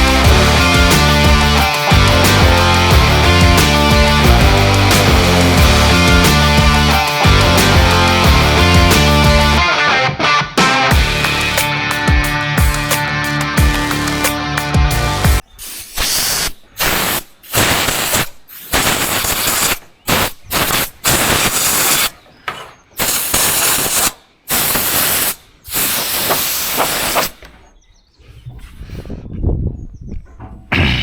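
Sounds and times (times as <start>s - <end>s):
air tool hissing bursts: 15.5s - 22.1s, 23.0s - 27.5s.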